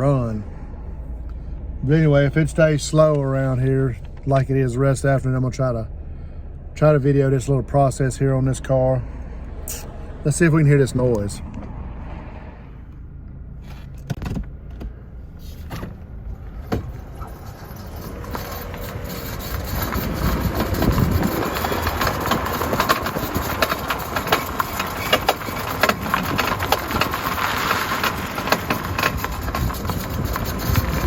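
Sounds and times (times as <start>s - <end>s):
car engine: 0.0s - 31.0s
road noise: 0.0s - 31.0s
clicking and knocking from wheel: 15.7s - 31.0s.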